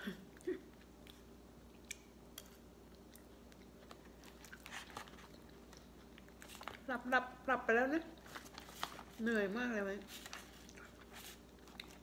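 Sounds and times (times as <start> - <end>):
faint steady hum: 0.0 - 12.0
soft mouth clicks chewing: 0.4 - 6.8, 10.6 - 12.0.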